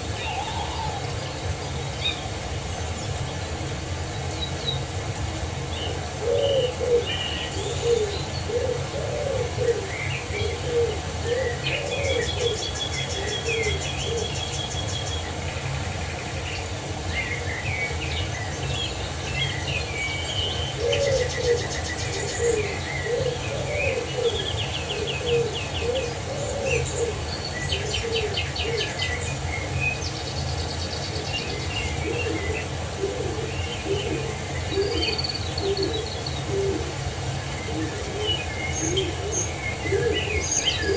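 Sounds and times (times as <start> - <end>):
small birds chirping and trilling: 0.0 - 40.9
low cooing: 0.2 - 1.2, 6.2 - 12.6, 20.8 - 27.2, 32.0 - 37.1, 37.7 - 40.9.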